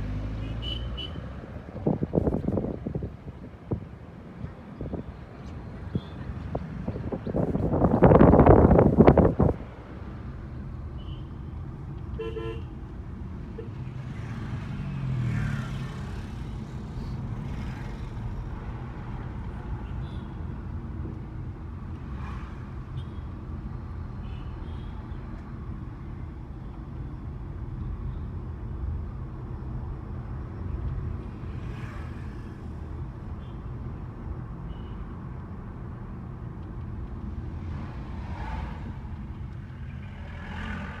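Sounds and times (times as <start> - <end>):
tyre and road noise rumble: 0.0 - 24.1, 35.7 - 41.0.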